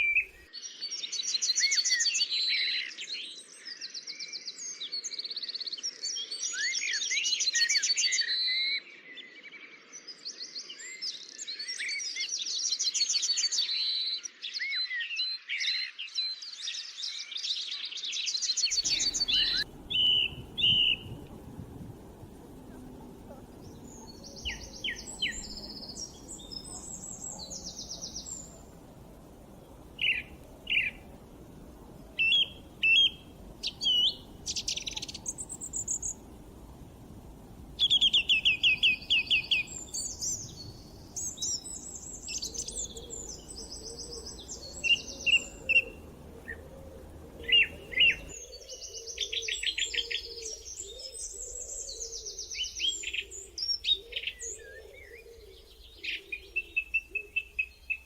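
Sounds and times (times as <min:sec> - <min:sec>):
faint low hiss: 0:00.0 - 0:01.6, 0:18.6 - 0:58.0
birds chirping and singing: 0:18.5 - 0:58.0.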